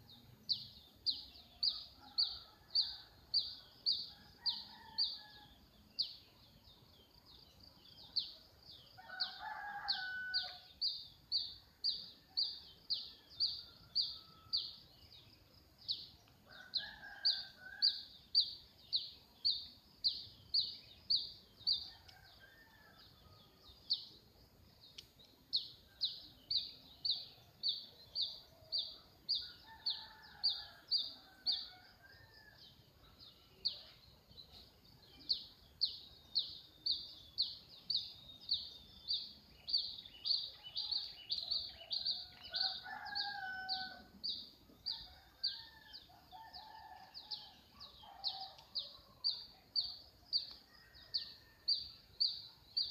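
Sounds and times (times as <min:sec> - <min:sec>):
rooster crowing: 0:09.0 - 0:10.6, 0:42.4 - 0:44.1.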